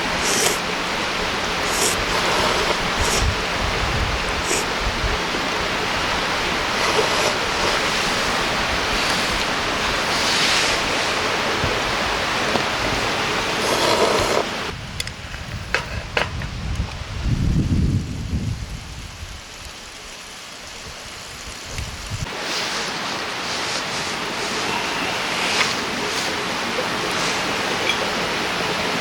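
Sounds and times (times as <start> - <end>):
river water rushing: 0.0 - 14.8, 22.3 - 29.0.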